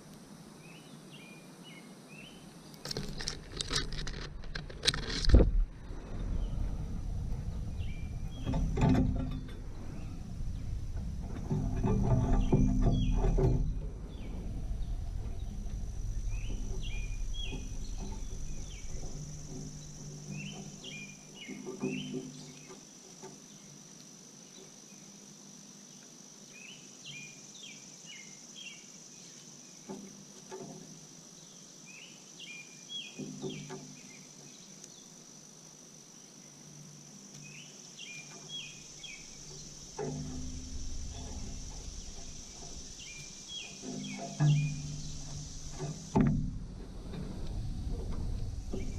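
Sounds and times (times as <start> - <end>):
songbird chirping: 0.0 - 35.4, 36.0 - 48.9
high-pitched insect drone: 6.0 - 22.9, 36.7 - 46.6.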